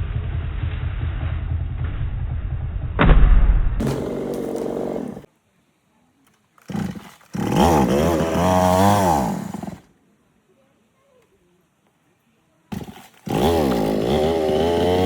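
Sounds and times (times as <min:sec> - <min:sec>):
low rumble: 0:00.0 - 0:04.7
heavy thud: 0:03.0 - 0:05.2
chainsaw engine revving: 0:03.8 - 0:05.3, 0:06.6 - 0:09.9, 0:12.7 - 0:15.0.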